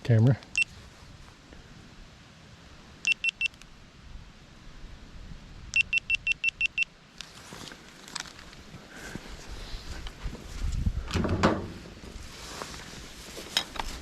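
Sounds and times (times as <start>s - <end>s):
high electronic beeps: 3.1s - 3.6s, 5.8s - 6.9s.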